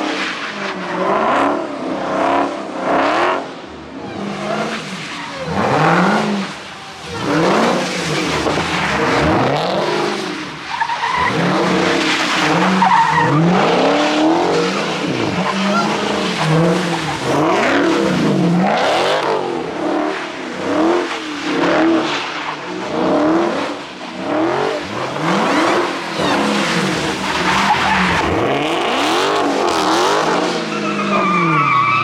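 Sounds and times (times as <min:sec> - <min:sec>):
car engine revving: 0:00.0 - 0:31.8
tyres spinning and skidding: 0:02.9 - 0:32.0.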